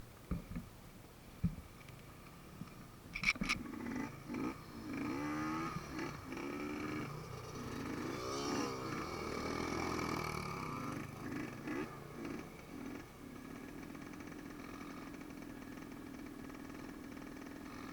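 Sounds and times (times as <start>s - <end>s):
dirt bike engines revving: 3.6s - 17.9s.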